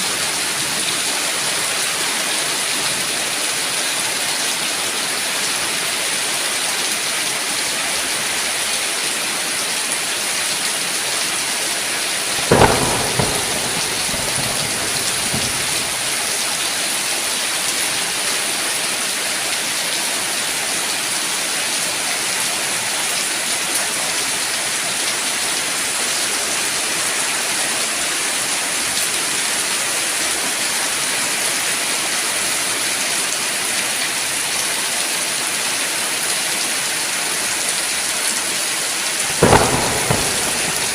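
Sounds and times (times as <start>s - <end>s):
steady rain falling: 0.0s - 40.9s
thunderclap with rumble: 12.3s - 16.6s, 39.3s - 40.9s.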